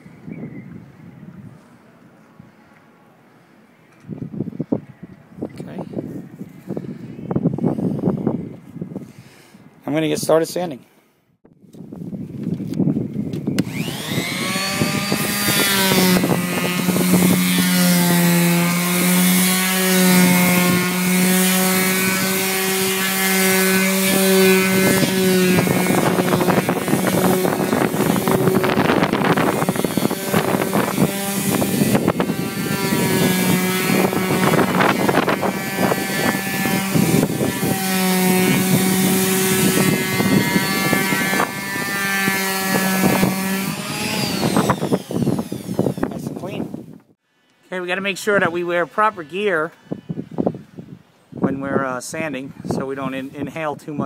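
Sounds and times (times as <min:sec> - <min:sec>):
electric power sander running: 0:13.4 - 0:47.0
sanding pad rasping: 0:13.6 - 0:46.3.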